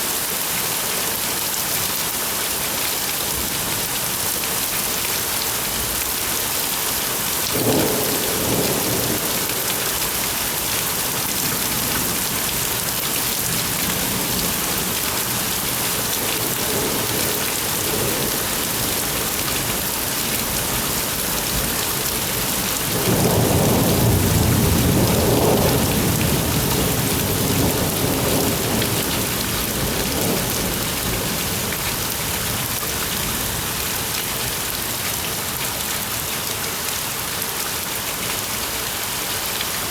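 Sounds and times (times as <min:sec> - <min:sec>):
heavy rain falling: 0:00.0 - 0:39.9
thunder rumbling: 0:22.9 - 0:31.7.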